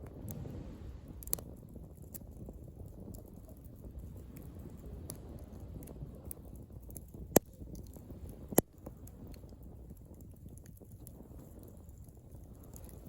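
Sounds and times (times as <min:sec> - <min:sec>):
campfire crackling: 0:00.0 - 0:13.0
loud fire pops: 0:00.0 - 0:13.0.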